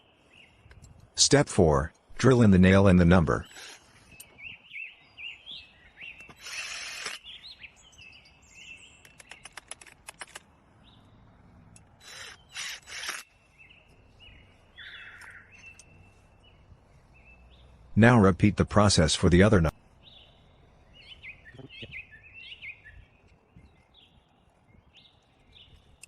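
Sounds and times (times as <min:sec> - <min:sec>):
small birds chirping: 0:00.0 - 0:26.0
sharp clicks: 0:06.2 - 0:07.3, 0:09.0 - 0:10.6, 0:11.7 - 0:13.3.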